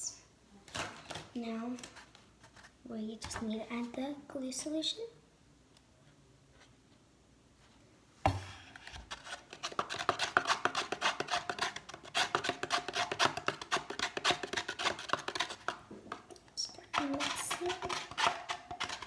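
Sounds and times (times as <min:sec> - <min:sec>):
knock: 0:08.3 - 0:08.5
tool stirring in plastic cup: 0:08.8 - 0:19.0.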